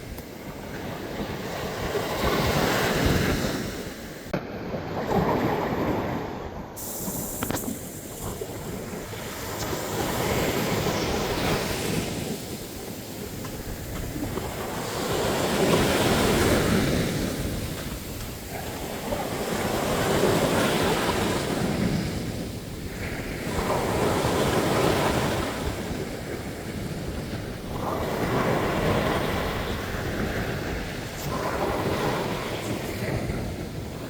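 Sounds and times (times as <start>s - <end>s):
ocean waves breaking on beach: 0.0s - 34.0s
wind on microphone: 0.0s - 34.0s.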